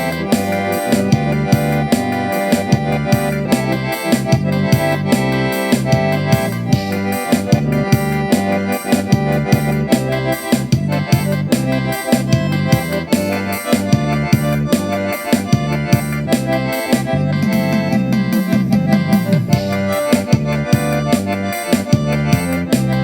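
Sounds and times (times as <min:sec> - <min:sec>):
accordion music: 0:00.0 - 0:23.0
steady percussive beat: 0:00.0 - 0:23.0.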